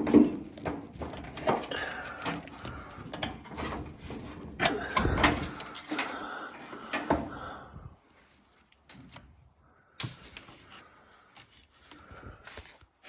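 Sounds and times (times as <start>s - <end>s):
hand tools clicking on metal: 4.6s - 6.2s.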